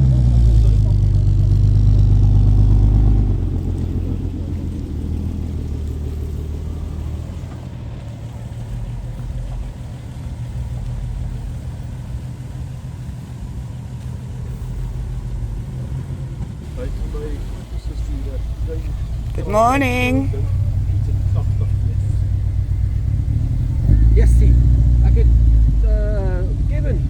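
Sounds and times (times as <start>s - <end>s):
car engine running: 0.0s - 27.0s.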